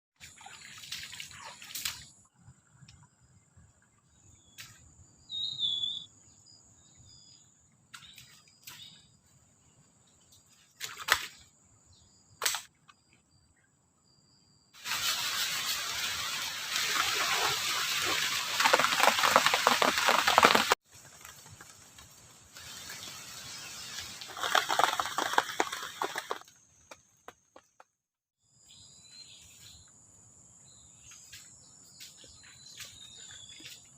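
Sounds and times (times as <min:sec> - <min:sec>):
bird chirp: 0:02.8 - 0:09.3, 0:28.6 - 0:33.9
insect drone: 0:13.0 - 0:26.9.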